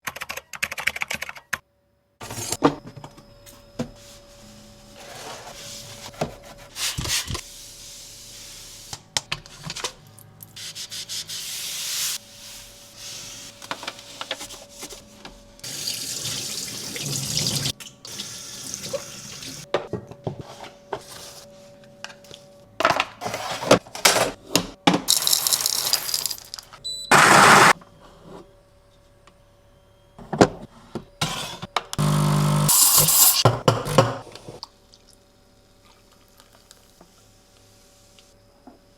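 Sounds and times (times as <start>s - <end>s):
coffee machine water flowing and hissing: 15.6s - 19.7s, 32.0s - 33.4s.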